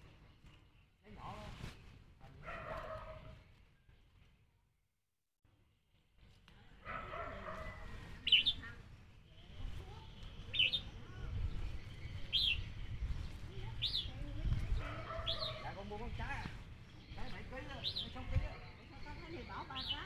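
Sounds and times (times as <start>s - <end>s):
bird chirping: 8.2s - 20.0s.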